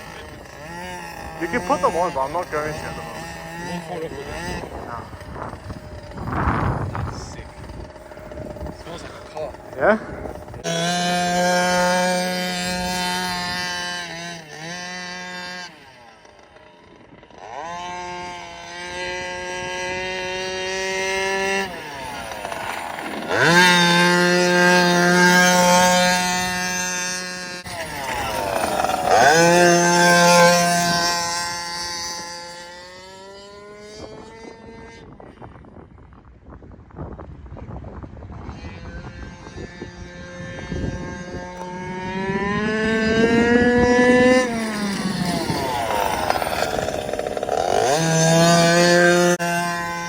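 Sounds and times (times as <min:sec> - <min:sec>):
two-stroke engine revving: 0:00.0 - 0:35.1, 0:38.7 - 0:50.0.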